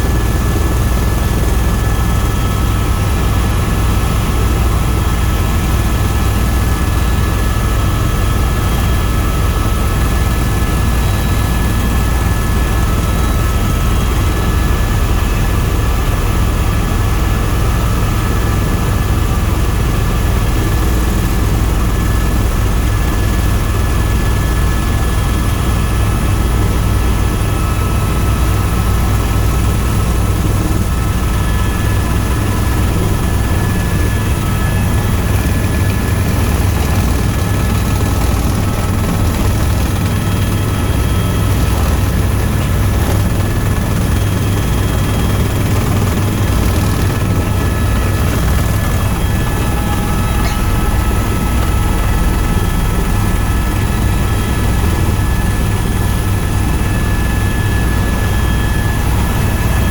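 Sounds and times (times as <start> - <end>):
helicopter rotor and engine drone: 0.0 - 59.9
high whine: 28.6 - 59.8.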